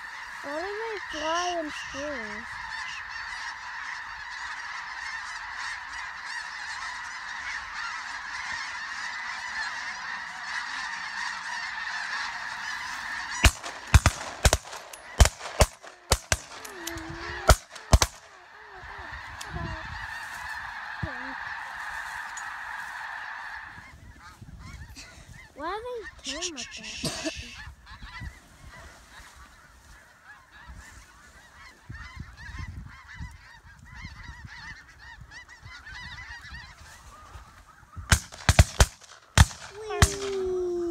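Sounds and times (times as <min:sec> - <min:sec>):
geese honking: 0:00.0 - 0:40.6
shotgun shots: 0:13.4 - 0:16.8, 0:17.4 - 0:18.4, 0:38.1 - 0:40.4.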